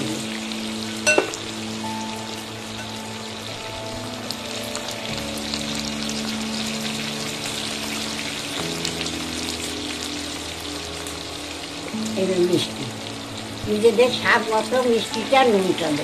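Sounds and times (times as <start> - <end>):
prawns sizzling in oil: 0.0 - 16.0
soft background music: 0.0 - 16.0.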